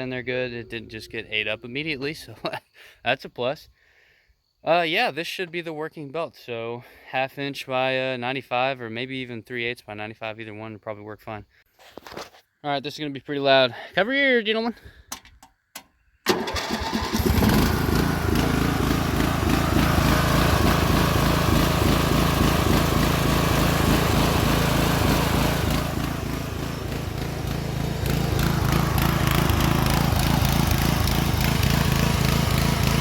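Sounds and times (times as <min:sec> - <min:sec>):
riding mower engine running: 0:16.3 - 0:33.0.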